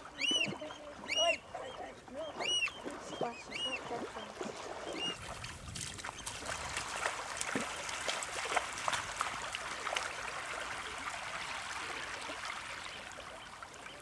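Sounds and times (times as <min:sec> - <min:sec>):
water trickling over sand: 0:02.9 - 0:14.0.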